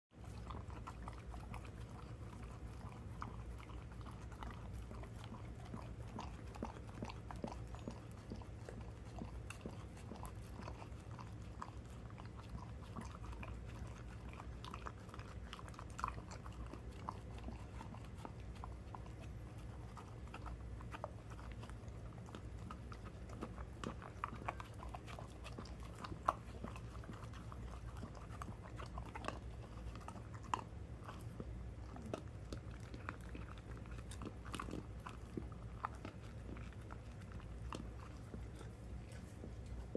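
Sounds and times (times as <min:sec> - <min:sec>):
dog chewing food: 0:00.1 - 0:39.9.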